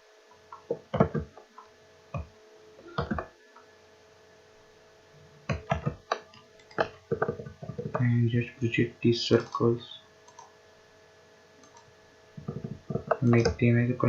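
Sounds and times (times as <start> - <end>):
faint electrical hum: 0.0 - 14.0
computer mouse clicking: 5.5 - 8.0, 10.2 - 10.5, 11.6 - 13.6.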